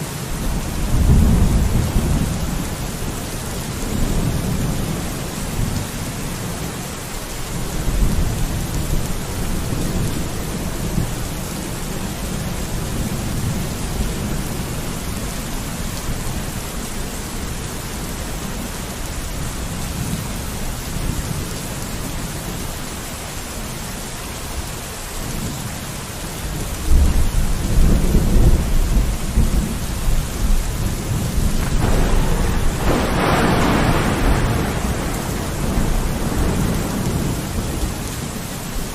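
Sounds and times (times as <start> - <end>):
steady rain: 0.0 - 38.9
rolling thunder rumbles: 0.3 - 6.7, 26.4 - 38.9.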